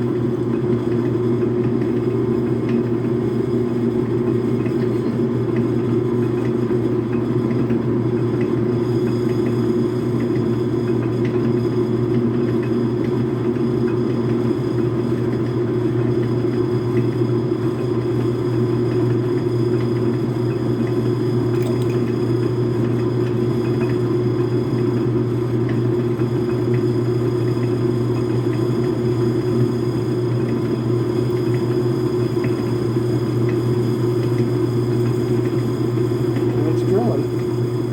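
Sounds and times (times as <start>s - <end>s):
metal lathe humming: 34.4s - 37.9s.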